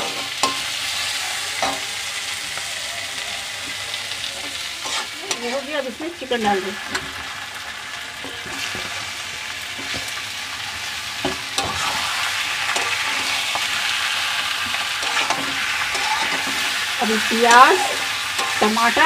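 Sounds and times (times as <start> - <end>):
chicken sizzling in hot oil: 0.0 - 19.0
spatula scraping and knocking pan: 4.4 - 5.6, 14.7 - 18.8.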